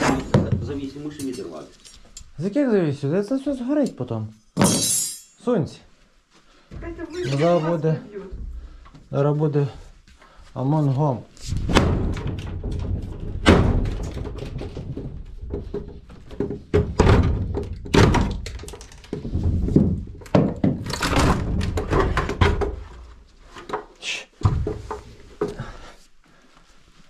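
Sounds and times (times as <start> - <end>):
knocks and bangs on hinged fitting: 11.6 - 22.9.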